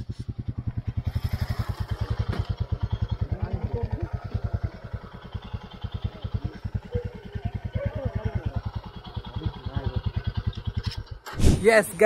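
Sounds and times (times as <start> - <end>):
single-cylinder engine idling: 0.0 - 12.0.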